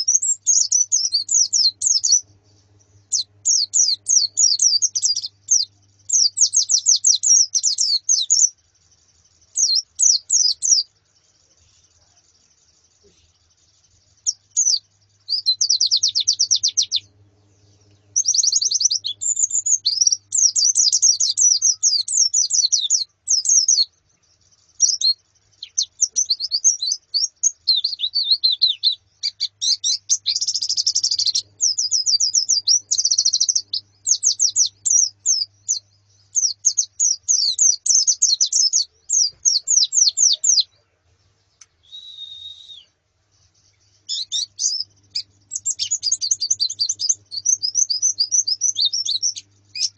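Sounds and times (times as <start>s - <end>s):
low buzzy bird call: 0.0s - 23.9s, 24.6s - 49.9s
small birds twittering: 0.0s - 49.9s.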